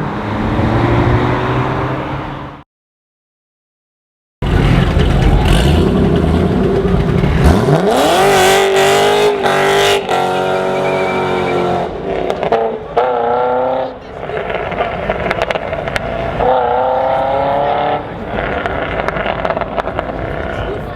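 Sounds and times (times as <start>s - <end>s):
car engine accelerating hard: 4.4s - 20.9s.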